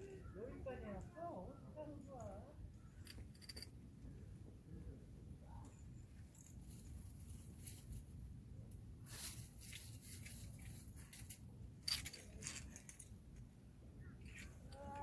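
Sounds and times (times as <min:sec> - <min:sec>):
metal climbing gear clinking: 0:02.8 - 0:03.8, 0:09.6 - 0:13.1.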